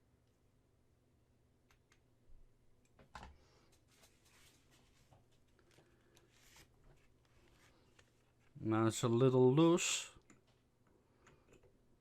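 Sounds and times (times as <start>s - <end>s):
faint clicks of plastic parts: 2.8s - 8.6s, 10.2s - 11.8s.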